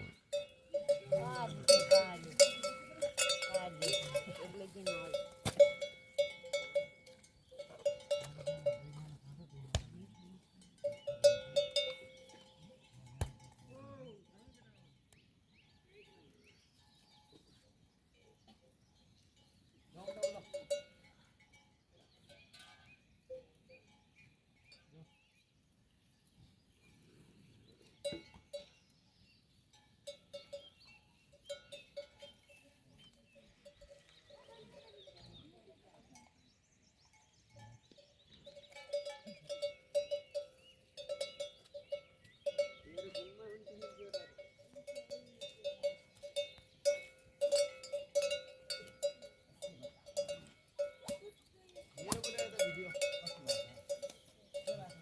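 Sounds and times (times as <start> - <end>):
metal neck bell clanking: 0.0 - 13.7, 37.1 - 55.0.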